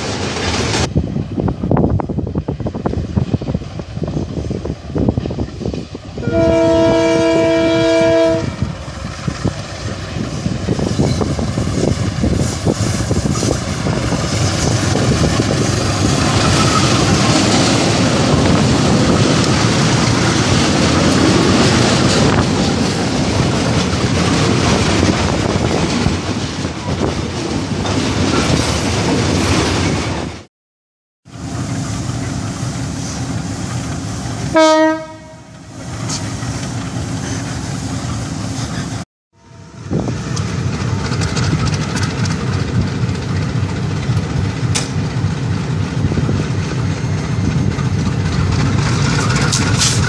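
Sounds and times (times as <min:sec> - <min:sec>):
freight train passing: 0:00.0 - 0:30.5, 0:31.2 - 0:50.0
locomotive horn chord: 0:06.2 - 0:08.6, 0:34.5 - 0:35.5
wheel clatter: 0:47.8 - 0:50.0.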